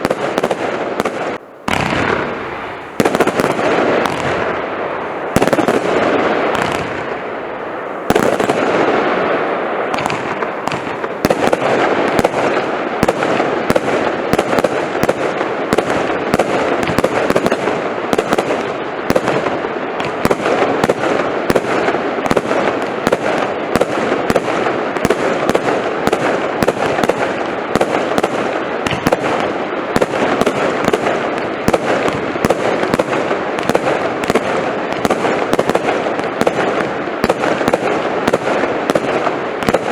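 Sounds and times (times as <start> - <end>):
firework crackle: 0.0 - 39.9
firework shots: 0.0 - 39.9.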